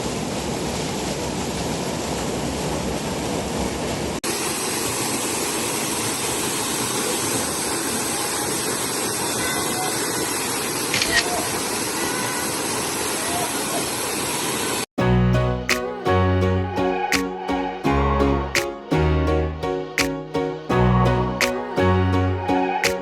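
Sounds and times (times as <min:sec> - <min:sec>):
rushing water: 0:00.0 - 0:14.9.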